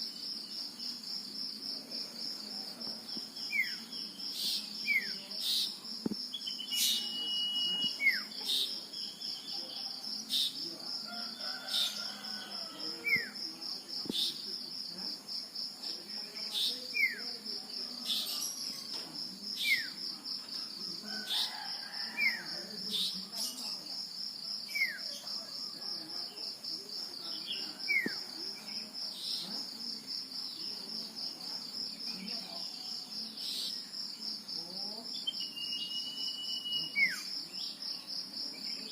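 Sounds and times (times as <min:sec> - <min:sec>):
insect trilling: 0:03.0 - 0:13.5, 0:32.1 - 0:37.8
held bird whistle: 0:06.4 - 0:08.2, 0:35.4 - 0:37.2.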